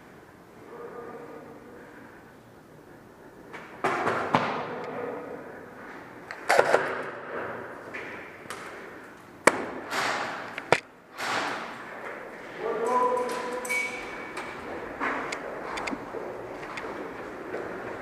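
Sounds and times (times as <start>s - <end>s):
airsoft gun shots: 6.4s - 7.2s.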